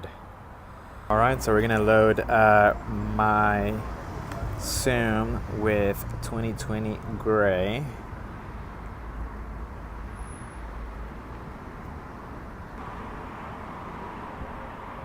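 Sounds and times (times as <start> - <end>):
background rumble and hiss: 0.0 - 10.1.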